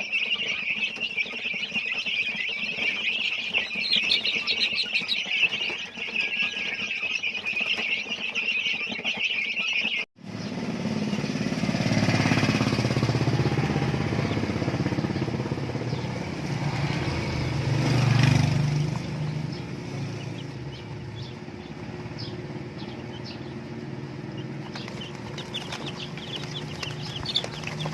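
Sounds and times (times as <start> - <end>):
motorcycle passing: 10.2 - 27.9.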